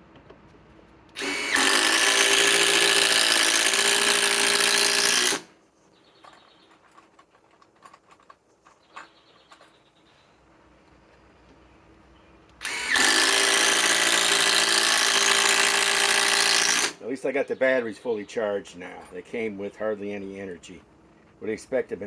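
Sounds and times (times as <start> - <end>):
impact driver driving screw into wood: 1.2 - 5.5, 12.6 - 17.0.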